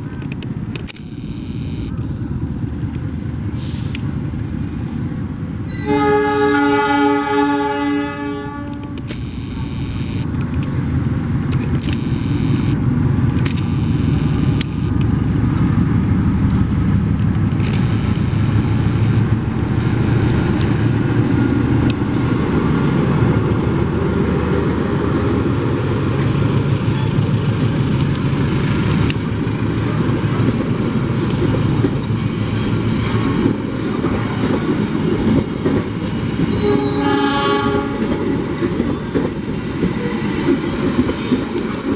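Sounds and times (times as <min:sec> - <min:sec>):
train rumbling past: 0:02.0 - 0:14.2, 0:14.8 - 0:41.9
train horn: 0:05.7 - 0:10.0, 0:36.4 - 0:38.9
train wheels clicking: 0:26.1 - 0:41.9.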